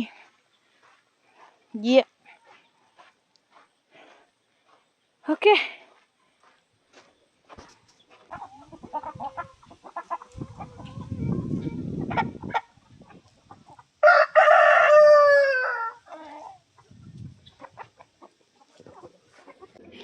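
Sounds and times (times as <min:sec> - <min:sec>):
chickens clucking: 0:06.3 - 0:14.0, 0:16.0 - 0:20.0
rooster crowing: 0:14.0 - 0:16.1.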